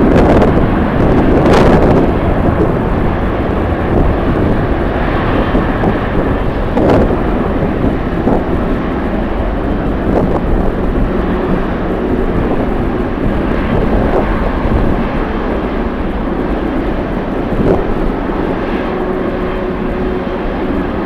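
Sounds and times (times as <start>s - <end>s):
jet engines rushing: 0.0s - 21.0s
wind buffeting microphone: 0.0s - 21.0s.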